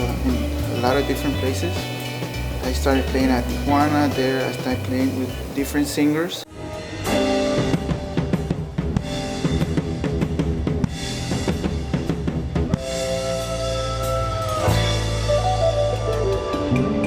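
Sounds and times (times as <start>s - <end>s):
band music: 0.0s - 17.0s.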